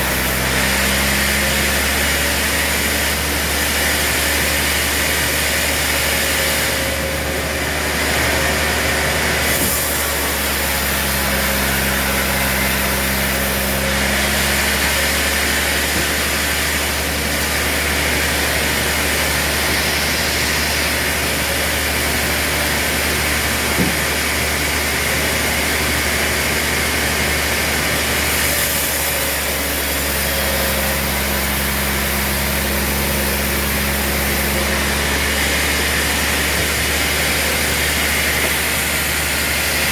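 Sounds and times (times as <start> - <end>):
sawmill machinery running: 0.0 - 39.9
sharp knock: 23.8 - 24.0.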